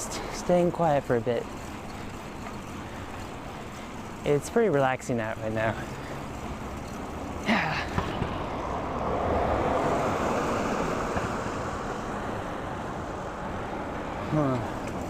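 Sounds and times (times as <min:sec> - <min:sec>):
wind and road noise: 0:00.0 - 0:15.0
car passing: 0:05.3 - 0:15.0.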